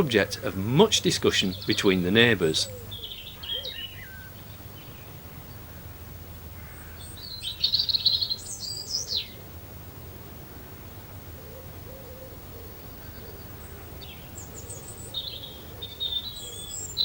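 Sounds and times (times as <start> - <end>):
songbird trilling: 0.0 - 9.4, 11.4 - 17.0.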